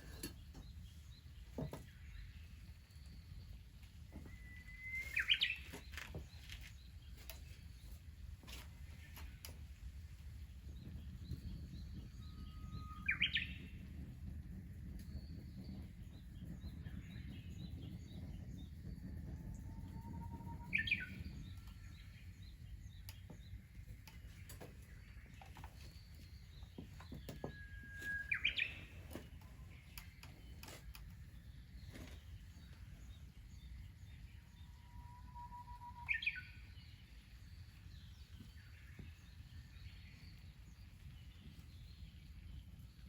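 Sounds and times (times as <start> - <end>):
birds chirping: 0.0 - 43.0
low rumbling background: 0.0 - 43.0
bird whistling song: 4.2 - 7.3, 10.7 - 13.9, 15.0 - 23.5, 25.2 - 30.8, 32.6 - 40.4.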